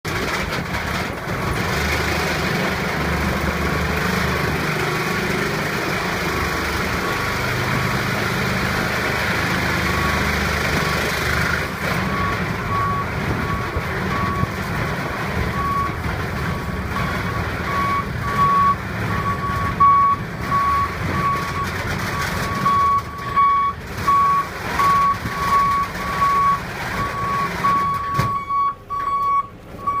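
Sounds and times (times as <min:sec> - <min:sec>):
engine rumble: 0:00.0 - 0:30.0
vehicle backup alarm beeping: 0:09.8 - 0:10.4, 0:12.0 - 0:14.6, 0:15.5 - 0:30.0.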